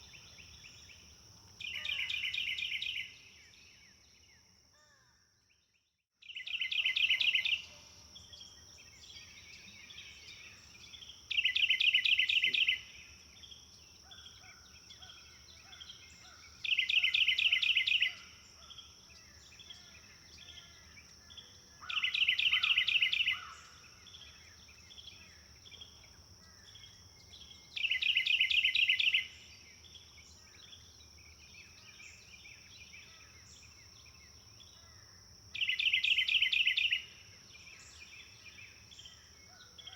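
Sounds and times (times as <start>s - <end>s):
bird chirps: 0.0s - 4.4s, 5.6s - 34.9s, 35.5s - 39.9s
songbird trilling: 1.6s - 3.2s, 6.3s - 7.8s, 9.1s - 12.9s, 14.1s - 18.8s, 19.5s - 25.9s, 27.7s - 29.4s, 35.5s - 37.1s.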